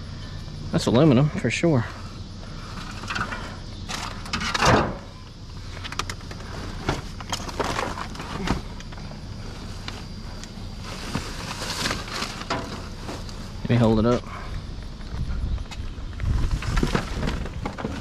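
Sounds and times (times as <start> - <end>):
rummaging through scrap metal: 2.7 - 5.2, 6.1 - 9.0, 10.0 - 13.6, 16.4 - 18.0
low rumble: 14.2 - 18.0.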